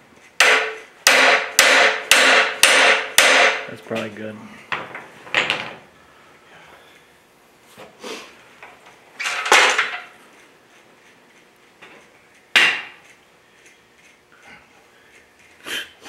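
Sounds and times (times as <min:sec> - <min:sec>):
sharp metal knocks: 0:00.4 - 0:03.7, 0:12.5 - 0:13.0.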